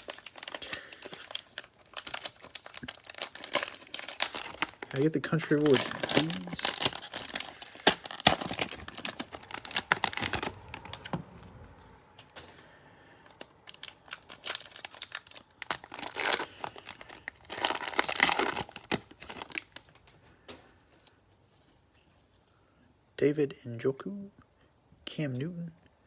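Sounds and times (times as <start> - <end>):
cellophane wrapper crinkling: 0.0 - 11.4, 13.2 - 20.2.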